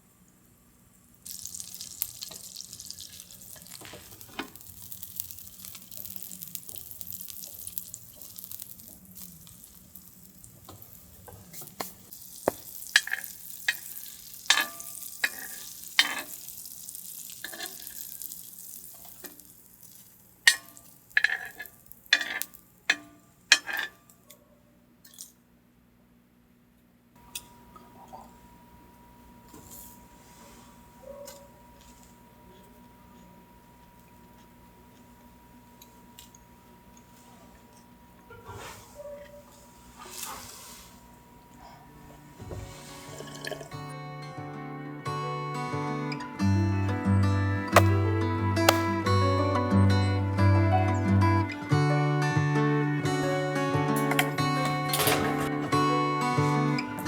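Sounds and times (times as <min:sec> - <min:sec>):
food sizzling in a pan: 0:00.0 - 0:24.0, 0:38.4 - 0:41.4, 0:42.0 - 0:44.0
utensil clinking against pan: 0:12.9 - 0:13.9, 0:14.5 - 0:16.4, 0:20.5 - 0:24.0.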